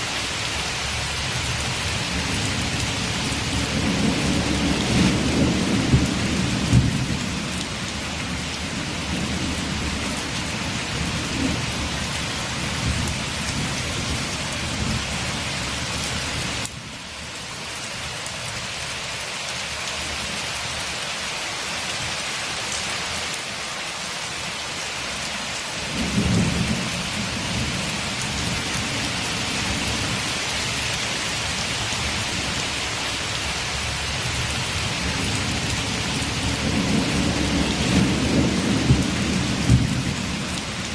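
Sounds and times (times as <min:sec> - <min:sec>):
heavy rain against a window: 0:00.0 - 0:40.9
rolling thunder: 0:01.5 - 0:15.2, 0:25.9 - 0:30.2, 0:34.3 - 0:40.9.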